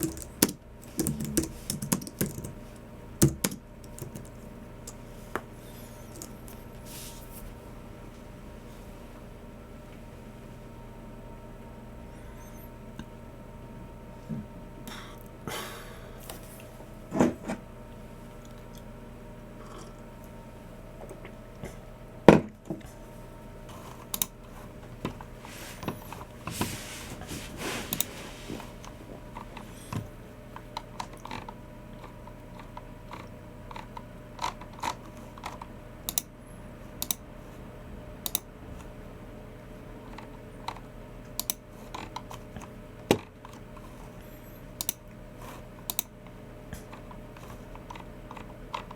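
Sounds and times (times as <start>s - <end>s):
keyboard keystrokes: 0.0s - 2.6s, 3.2s - 5.0s
faint steady hum: 0.0s - 48.9s.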